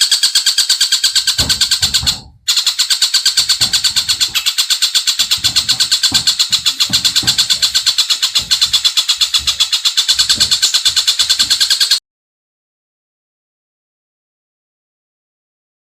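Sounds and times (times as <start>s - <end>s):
bird rattling trill: 0.0s - 12.0s.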